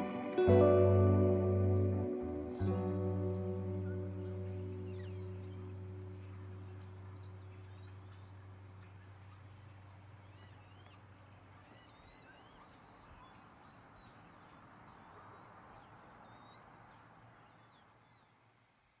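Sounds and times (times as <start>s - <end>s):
low hum: 0.0s - 11.5s
background hiss: 0.0s - 19.0s
faint birds chirping: 0.0s - 19.0s.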